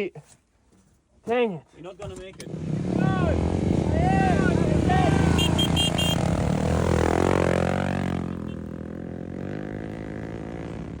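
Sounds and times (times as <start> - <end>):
race vehicle engine running: 2.4 - 11.0.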